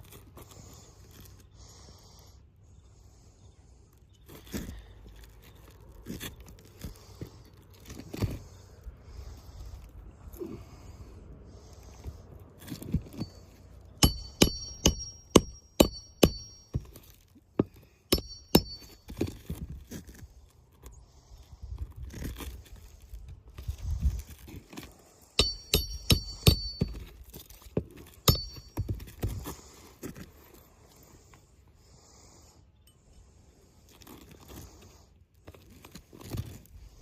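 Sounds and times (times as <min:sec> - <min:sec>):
scraping on shingles: 0:04.3 - 0:09.9, 0:11.9 - 0:31.3, 0:33.7 - 0:37.0
metal tool tapping on shingles: 0:13.0 - 0:19.6, 0:25.4 - 0:29.5.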